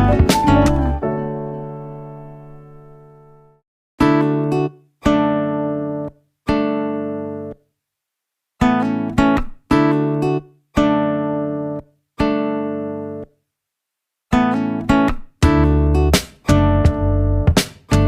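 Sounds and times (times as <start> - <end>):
plucked chords: 0.0 - 3.4, 14.4 - 18.0.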